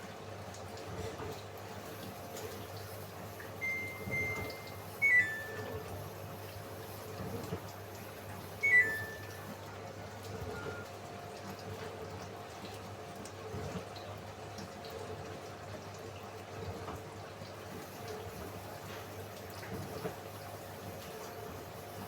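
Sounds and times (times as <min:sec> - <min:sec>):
washing machine water sloshing: 0:00.0 - 0:22.0
falling electronic beep: 0:03.6 - 0:05.8, 0:08.6 - 0:09.3.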